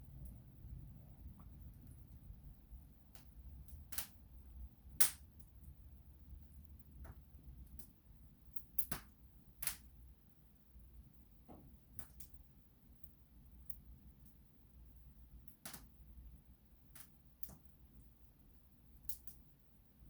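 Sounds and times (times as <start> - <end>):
low steady rumble: 0.0 - 8.6
wood fire crackling: 0.0 - 10.1, 11.5 - 14.4, 15.2 - 18.2, 19.0 - 19.5.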